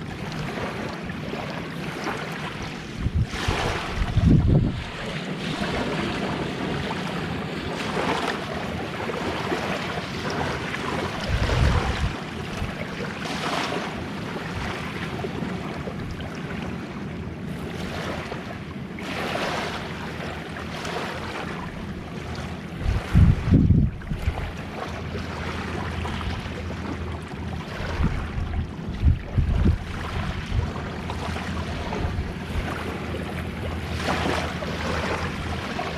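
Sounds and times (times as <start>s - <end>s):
gentle waves washing ashore: 0.0s - 35.9s
wind buffeting microphone: 2.0s - 13.0s, 21.8s - 35.9s.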